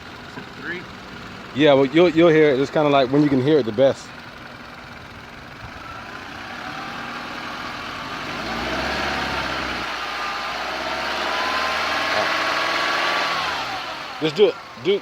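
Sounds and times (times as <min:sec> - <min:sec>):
thin engine whine: 0:05.5 - 0:15.0
car engine revving: 0:05.6 - 0:15.0.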